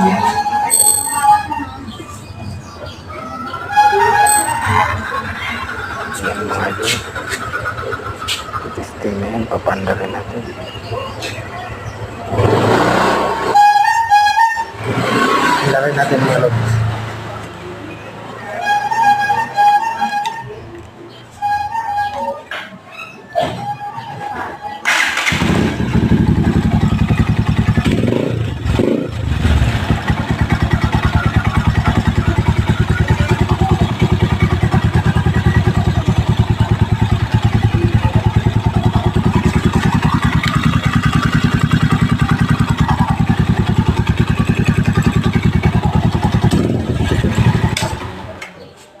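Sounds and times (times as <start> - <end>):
motorcycle engine idling: 4.2 - 12.4, 25.2 - 48.4.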